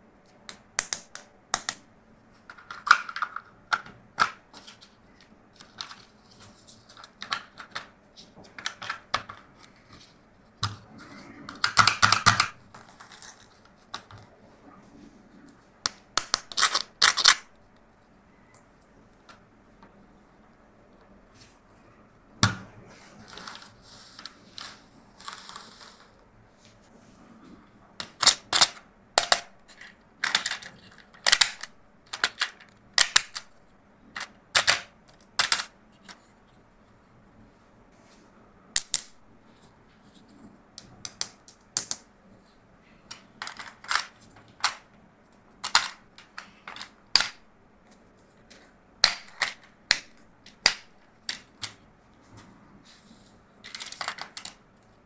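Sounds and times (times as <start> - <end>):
plastic toys clicking and knocking: 2.4 - 4.8, 6.9 - 9.5, 11.5 - 14.3, 15.9 - 17.5, 28.0 - 36.2, 40.8 - 42.0, 43.1 - 44.9, 45.6 - 47.4, 49.0 - 51.8, 53.6 - 54.6.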